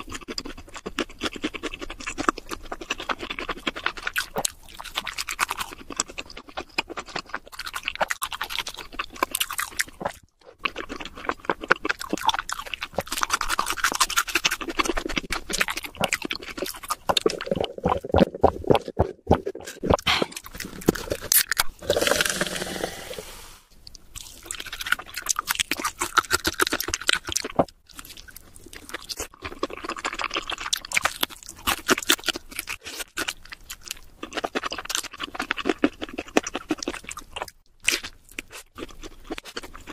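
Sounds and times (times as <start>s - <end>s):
chewing crisp fried food: 0.0s - 22.8s, 23.7s - 39.9s
sipping through a straw: 19.6s - 23.7s.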